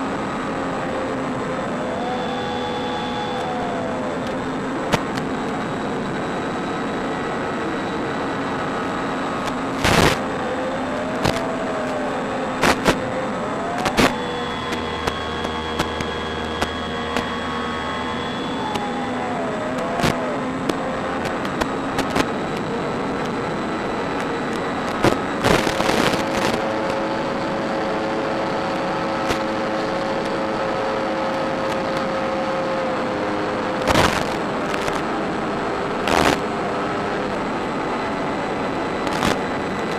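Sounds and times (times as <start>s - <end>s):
model plane electric motor whine: 0.0s - 39.9s.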